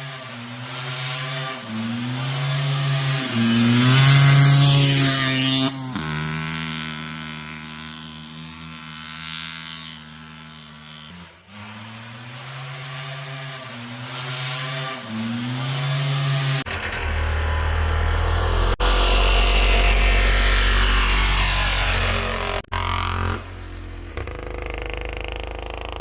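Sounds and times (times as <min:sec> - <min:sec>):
two-stroke engine running: 0:00.0 - 0:16.6
low rumble: 0:16.6 - 0:24.6.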